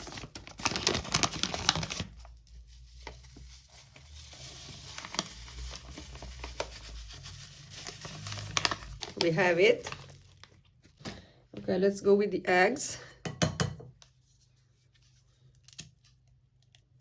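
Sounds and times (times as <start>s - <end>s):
packet crinkling: 0.0s - 11.0s.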